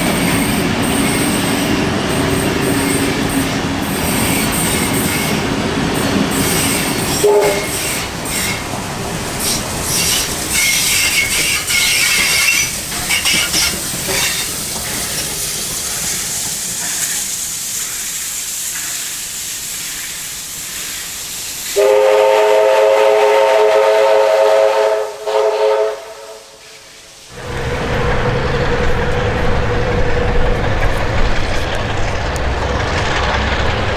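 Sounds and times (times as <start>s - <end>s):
train wheel squeal: 0.0s - 8.7s, 9.4s - 21.8s
train wheels clicking on rails: 0.0s - 22.2s, 26.6s - 33.9s
locomotive horn blast: 7.2s - 7.8s, 21.8s - 26.6s.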